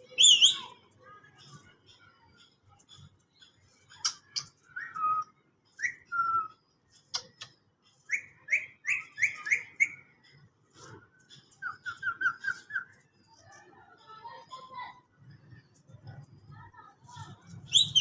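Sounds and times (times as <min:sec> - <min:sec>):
parrot whistling and chirping: 0:00.1 - 0:00.7, 0:04.7 - 0:06.7, 0:08.1 - 0:10.2, 0:11.6 - 0:13.2, 0:17.7 - 0:18.0.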